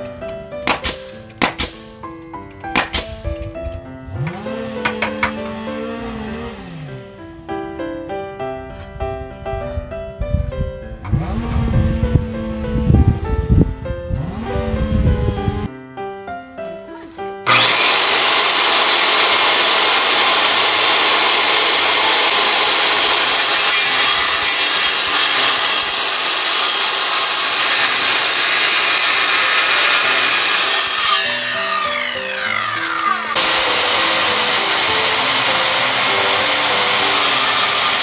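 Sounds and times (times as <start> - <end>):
background music: 0.0 - 38.0
power saw cutting timber: 0.7 - 2.0, 2.7 - 7.1, 11.1 - 13.2, 14.1 - 15.7, 17.4 - 38.0.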